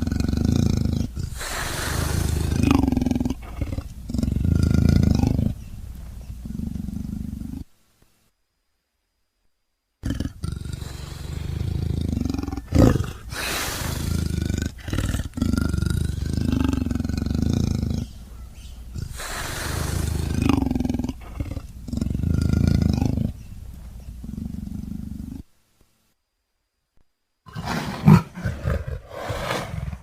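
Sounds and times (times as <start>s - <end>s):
leopard growling and snarling: 0.0s - 7.7s, 10.0s - 25.4s, 27.5s - 30.0s.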